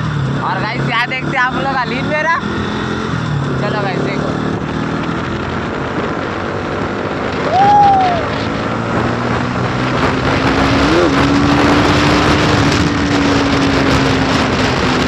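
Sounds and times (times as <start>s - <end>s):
motorcycle engine riding: 0.0s - 15.0s
wind noise: 2.0s - 15.0s
rising and falling tone: 7.0s - 14.9s.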